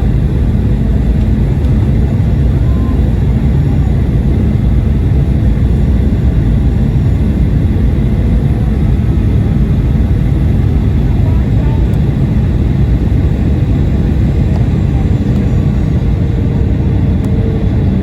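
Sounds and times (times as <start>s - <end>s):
airliner engines rumbling: 0.0s - 18.0s.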